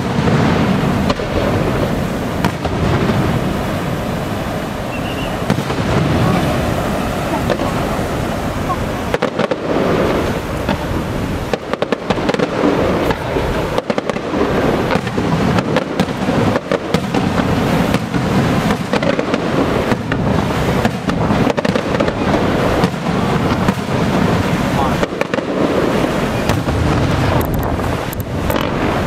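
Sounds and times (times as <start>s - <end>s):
crackling firework stars: 0.0s - 29.0s
fireworks bangs: 0.0s - 29.0s.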